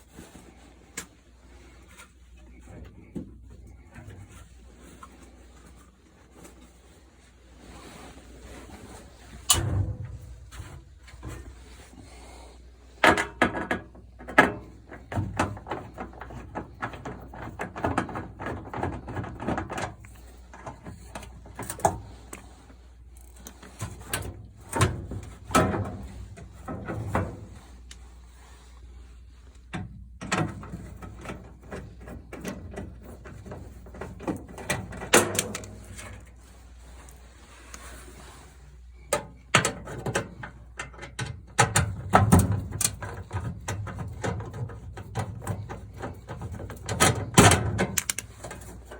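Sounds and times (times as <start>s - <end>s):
tools and metal panels clanking: 8.9s - 12.3s, 13.0s - 22.6s, 23.6s - 27.7s, 29.7s - 36.3s, 39.0s - 48.9s.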